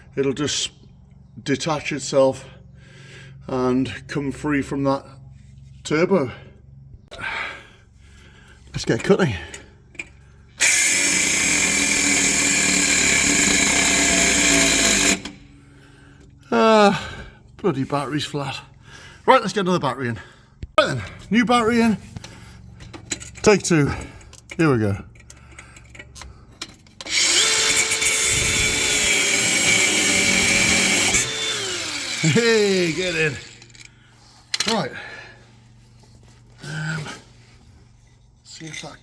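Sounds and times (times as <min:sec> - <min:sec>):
cut-off tool whining: 0:10.6 - 0:15.5, 0:27.0 - 0:34.0.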